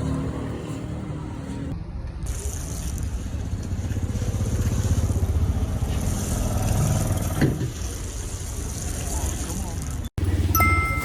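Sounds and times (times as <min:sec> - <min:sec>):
motorbike engine running: 0:02.3 - 0:07.4, 0:10.2 - 0:11.0.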